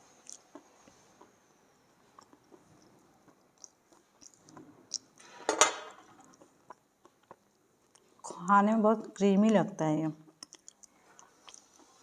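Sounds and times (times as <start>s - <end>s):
faint chewing clicks: 0.2s - 1.4s, 2.0s - 5.2s, 6.2s - 8.2s, 10.3s - 12.0s.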